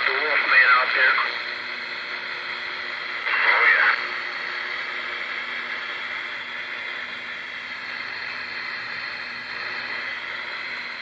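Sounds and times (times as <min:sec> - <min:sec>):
faint steady hum: 0:00.0 - 0:11.0
radio static hiss: 0:00.0 - 0:11.0.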